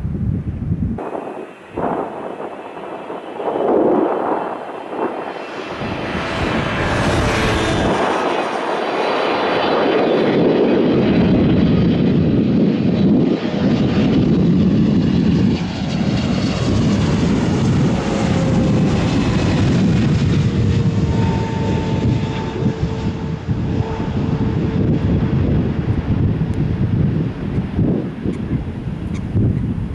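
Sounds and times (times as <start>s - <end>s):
jet engines rushing: 0.2s - 29.9s
faint whine: 1.0s - 10.5s.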